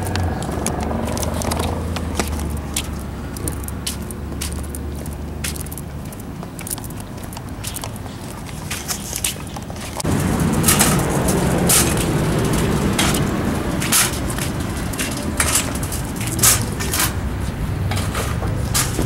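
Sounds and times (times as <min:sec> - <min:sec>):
car engine running: 0:00.0 - 0:04.4, 0:10.0 - 0:17.5.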